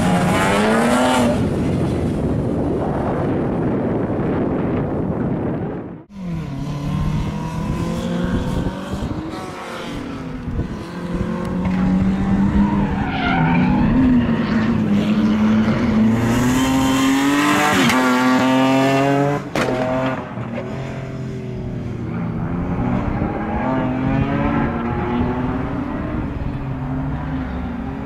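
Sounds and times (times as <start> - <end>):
car engine revving: 6.1 - 28.0.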